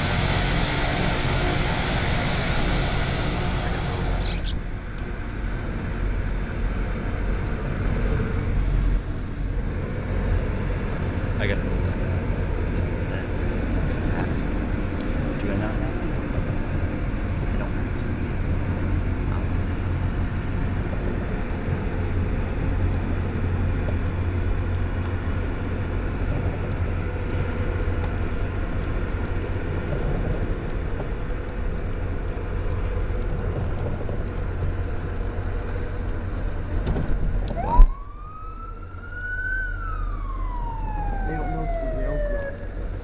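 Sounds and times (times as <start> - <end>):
emergency vehicle siren wailing: 0.0 - 4.5, 37.3 - 43.0
steady rumble with low hum: 0.0 - 43.0.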